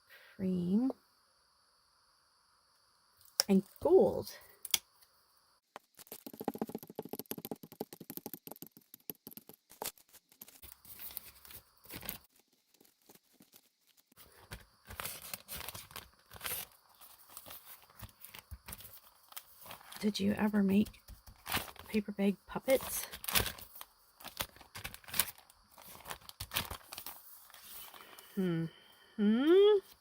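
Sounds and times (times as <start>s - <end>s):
sticky crackling of paint: 5.7s - 15.2s.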